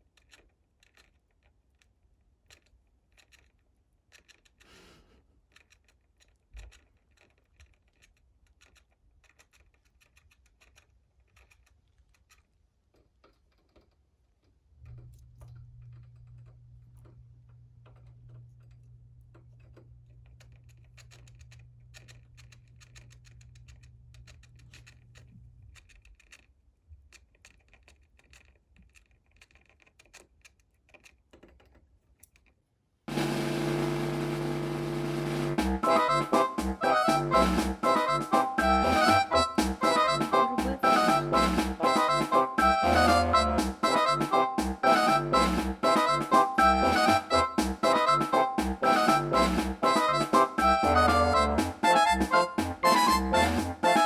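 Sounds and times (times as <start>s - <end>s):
small clicks and scratching: 0.0s - 32.9s
low hum: 33.1s - 53.8s.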